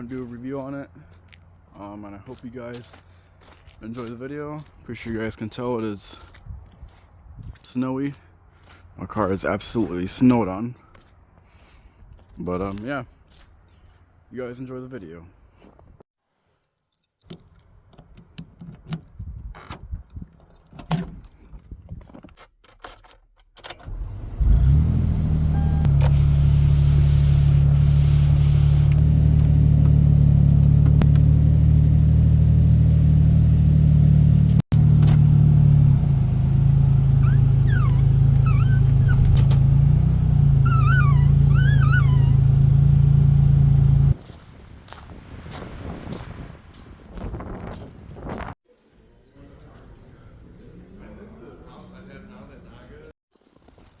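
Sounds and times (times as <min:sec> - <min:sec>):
knocks and handling noises: 0:16.7 - 0:23.7
car engine droning: 0:23.8 - 0:44.2
short high squeaks: 0:37.1 - 0:44.2.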